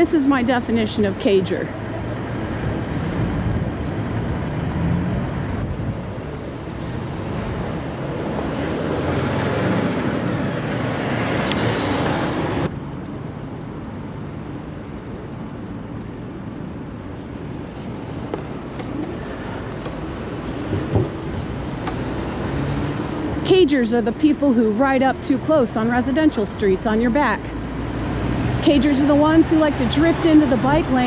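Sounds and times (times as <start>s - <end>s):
street traffic: 0.0s - 31.0s
wind on microphone: 2.4s - 8.8s.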